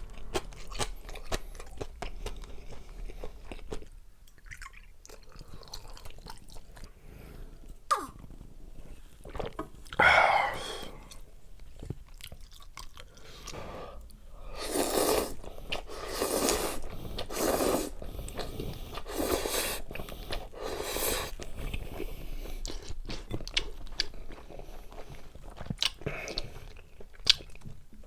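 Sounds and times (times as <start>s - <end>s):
chewing and biting food: 0.0s - 7.0s, 11.6s - 13.6s, 21.3s - 28.0s.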